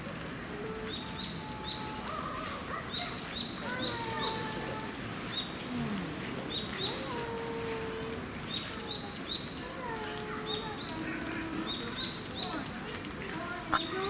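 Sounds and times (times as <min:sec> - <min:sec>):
small birds chirping: 0:08.4 - 0:14.0.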